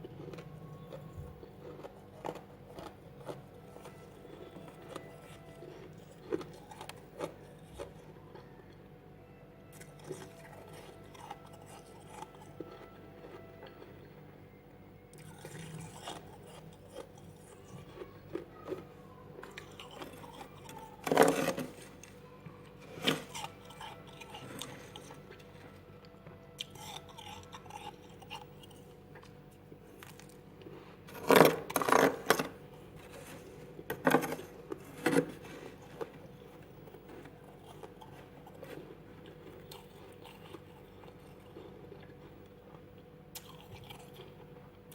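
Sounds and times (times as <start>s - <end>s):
soft scraping and crunching: 0.0s - 8.8s, 9.7s - 14.2s, 15.1s - 44.8s.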